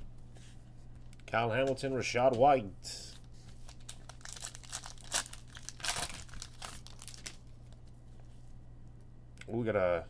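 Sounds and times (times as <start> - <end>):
faint low hum: 0.0 - 10.0
wrapper crinkling and tearing: 3.2 - 7.9.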